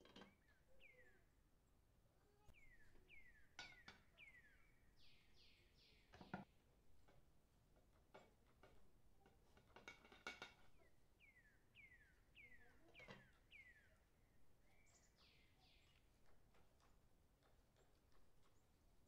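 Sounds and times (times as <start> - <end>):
bird chirping with falling pitch: 0.2 - 1.4, 2.4 - 6.4, 11.2 - 16.2.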